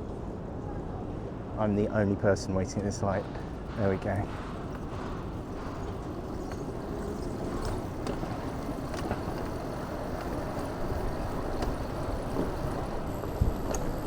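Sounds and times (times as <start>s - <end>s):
wind and road noise: 1.4s - 14.0s
small rattles: 2.8s - 14.0s.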